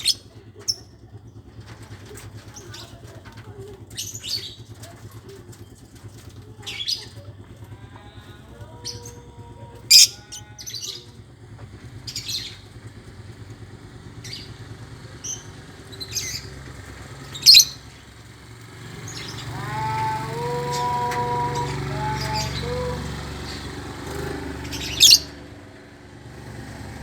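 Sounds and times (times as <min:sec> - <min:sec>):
small engine running: 0:00.0 - 0:27.0
lovebirds chirping: 0:14.2 - 0:25.4.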